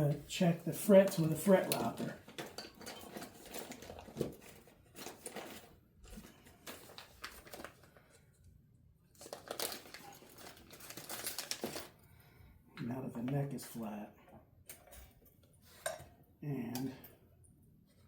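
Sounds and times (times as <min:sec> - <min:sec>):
rustling handling noise: 0:00.0 - 0:12.3.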